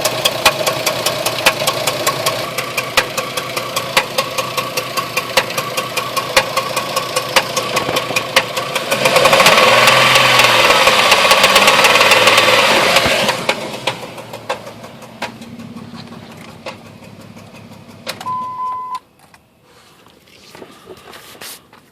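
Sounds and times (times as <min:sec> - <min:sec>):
engine knocking: 0:00.0 - 0:18.2
engine revving: 0:00.0 - 0:18.9
car engine running: 0:00.0 - 0:21.9
short beep: 0:18.2 - 0:19.0.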